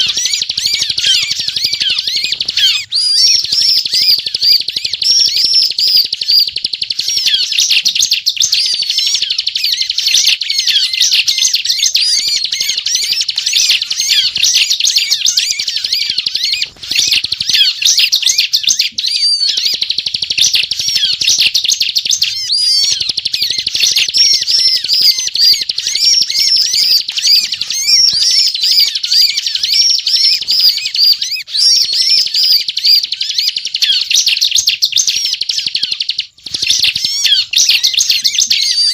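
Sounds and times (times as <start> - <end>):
bird high-pitched chattering song: 0.0 - 38.9.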